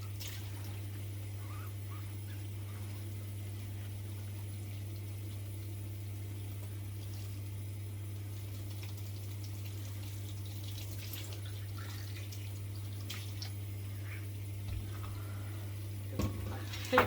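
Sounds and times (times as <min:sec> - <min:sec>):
water splashing in a sink: 0:00.0 - 0:01.0, 0:08.1 - 0:15.4, 0:16.0 - 0:17.0
steady low hum: 0:00.0 - 0:17.0.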